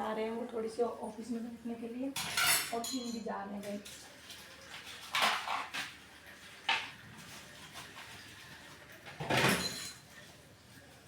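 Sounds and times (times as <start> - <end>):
kitchen utensils clattering: 2.2 - 4.0, 4.8 - 6.0, 7.6 - 10.4.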